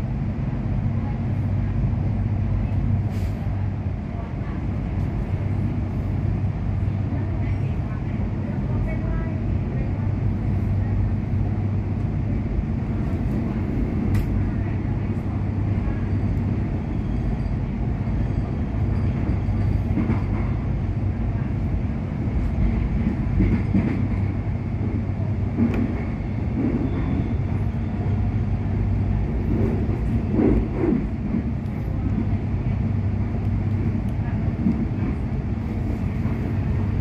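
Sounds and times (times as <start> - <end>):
train interior hum: 0.0 - 37.0
wheels rumbling on rail: 0.0 - 37.0.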